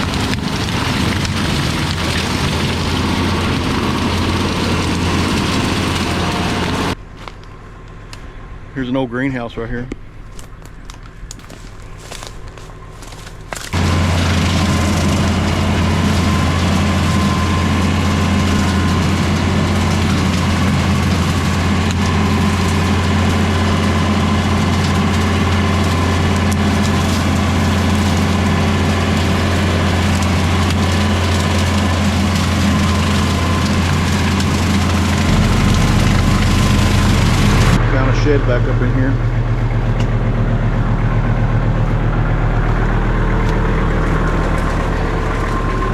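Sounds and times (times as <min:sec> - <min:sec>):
tractor engine drone: 0:00.0 - 0:45.9
rotary cutter cracking wood: 0:09.9 - 0:37.8.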